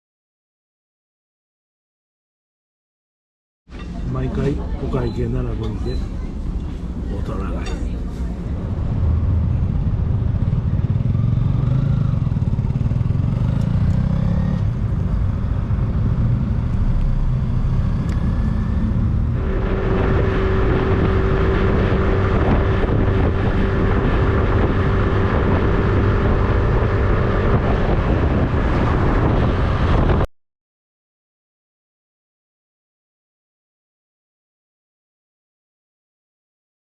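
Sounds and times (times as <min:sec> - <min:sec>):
vehicle engine rumble: 0:03.7 - 0:30.3
steady hum: 0:16.5 - 0:23.6
loud rushing noise: 0:17.2 - 0:30.3.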